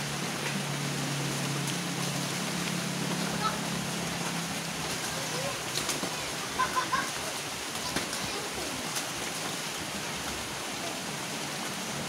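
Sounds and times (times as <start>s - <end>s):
rain falling: 0.0s - 12.0s
distant children's voices: 3.2s - 3.7s, 5.0s - 8.9s.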